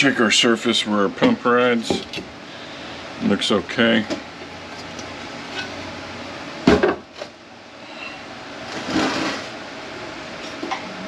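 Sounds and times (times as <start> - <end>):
loud knock on workbench: 6.6 - 7.0.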